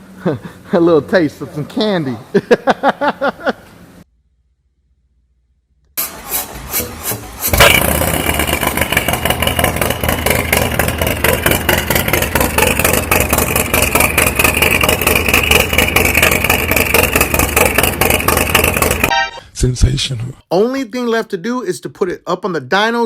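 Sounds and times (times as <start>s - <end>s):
starter cranking engine: 6.0s - 19.1s
motorcycle engine loping: 7.5s - 19.1s.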